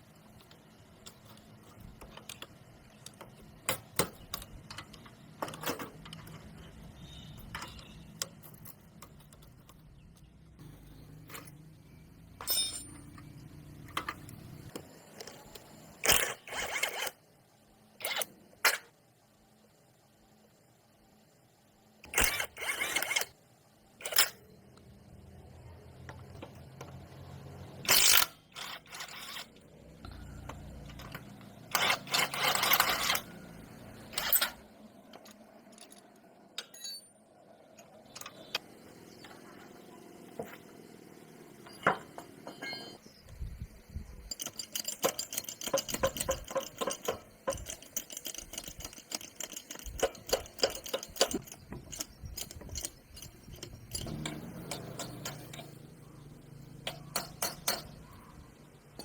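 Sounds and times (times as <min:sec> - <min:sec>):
metal tools knocking and clinking: 0:00.4 - 0:06.8, 0:07.4 - 0:10.3, 0:12.4 - 0:16.7, 0:34.1 - 0:37.2, 0:41.7 - 0:43.2, 0:44.2 - 0:55.8, 0:56.8 - 0:58.2
fast clicking: 0:44.3 - 0:55.4.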